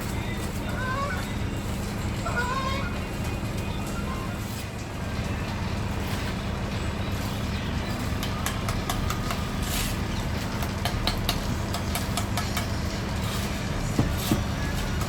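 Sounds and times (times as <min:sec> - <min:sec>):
engine idling: 0:00.0 - 0:15.0
sharp clicks and knocks: 0:10.6 - 0:12.8.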